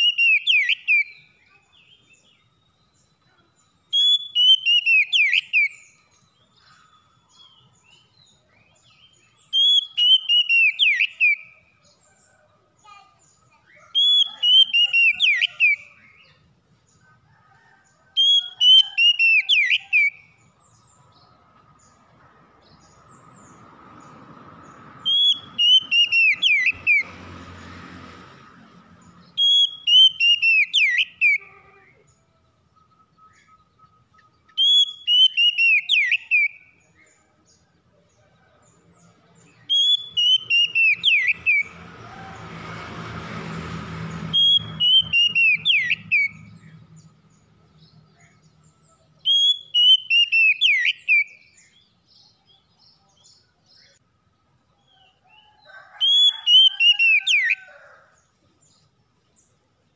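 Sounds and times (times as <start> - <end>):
bird singing whistled notes: 0.0 - 12.3, 13.2 - 16.4, 18.2 - 21.2, 25.0 - 27.1, 29.2 - 31.5, 32.1 - 37.2, 39.5 - 41.8, 44.3 - 47.1, 47.8 - 54.0.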